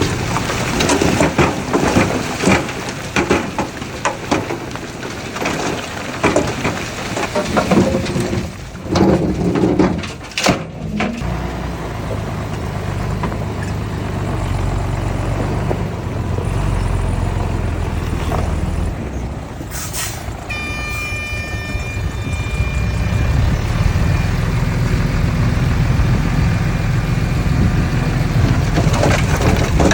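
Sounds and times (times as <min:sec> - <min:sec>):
diesel engine running: 0:00.0 - 0:29.9
high-pitched tone: 0:20.5 - 0:26.0.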